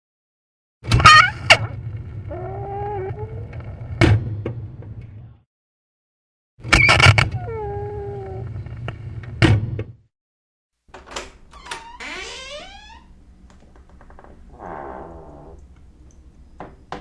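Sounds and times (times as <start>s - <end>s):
door banging shut: 10.9s - 13.1s
door rattling: 10.9s - 14.7s
door hinges creaking: 10.9s - 15.8s.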